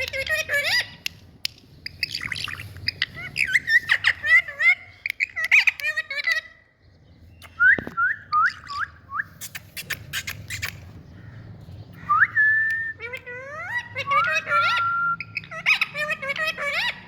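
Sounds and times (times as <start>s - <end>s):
parakeet clicks: 0.0s - 0.3s, 1.0s - 2.3s, 9.4s - 11.0s
parakeet chirping and whistling: 1.8s - 6.4s, 7.4s - 10.8s, 12.1s - 17.0s.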